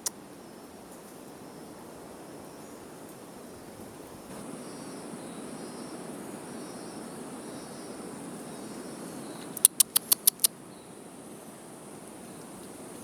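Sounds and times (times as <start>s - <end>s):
insects buzzing: 4.3s - 13.0s
sharp ticks: 9.6s - 10.5s.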